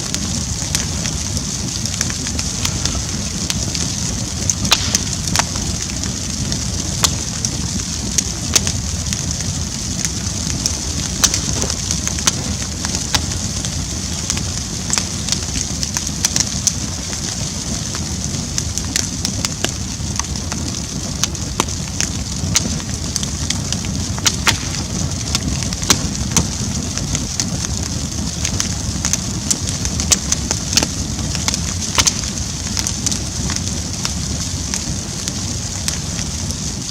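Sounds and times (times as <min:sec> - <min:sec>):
bonfire flames rushing: 0:00.0 - 0:36.9
fire crackling and popping: 0:00.0 - 0:36.9.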